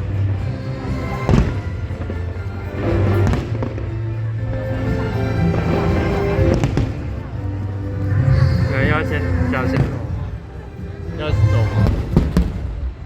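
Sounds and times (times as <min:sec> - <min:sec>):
music with held notes: 0:00.0 - 0:12.9
fireworks bursting: 0:01.0 - 0:04.0, 0:05.5 - 0:07.3, 0:09.7 - 0:10.4, 0:11.6 - 0:13.0.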